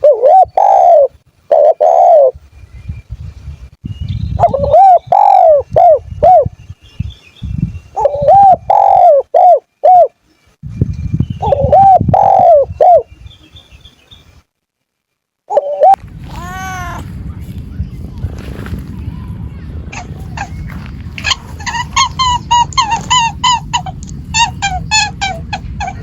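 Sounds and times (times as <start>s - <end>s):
low rumbling noise: 15.7s - 26.0s
animal calling: 19.9s - 26.0s.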